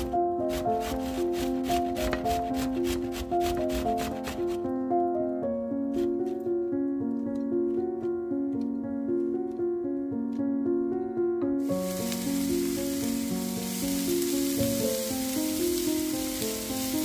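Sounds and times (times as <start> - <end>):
background music: 0.0 - 17.0
vegetables sizzling in a pan: 11.6 - 17.0.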